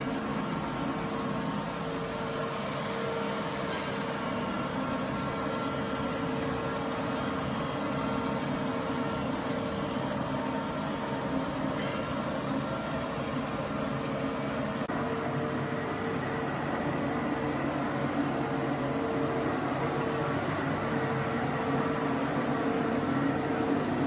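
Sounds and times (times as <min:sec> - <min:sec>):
vacuum cleaner running: 0:13.6 - 0:24.0.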